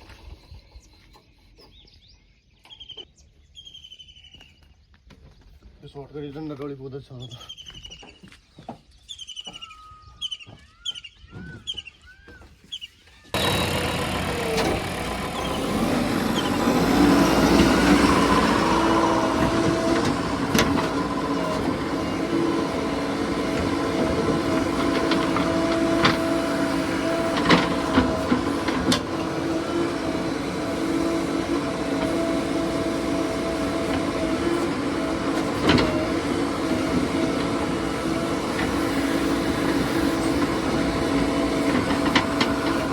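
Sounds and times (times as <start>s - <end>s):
bird chirping: 0.0s - 5.5s, 6.9s - 13.7s
diesel engine running: 13.3s - 42.9s.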